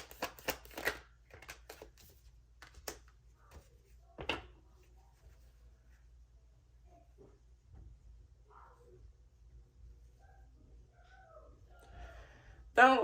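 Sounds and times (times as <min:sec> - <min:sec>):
cards clicking and tapping: 0:00.0 - 0:03.6.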